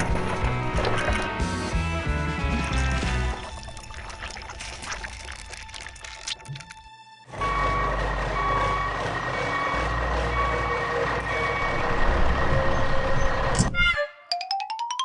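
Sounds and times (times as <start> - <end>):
truck reversing alarm beeping: 7.3 - 13.5
engine rumble: 7.3 - 13.6.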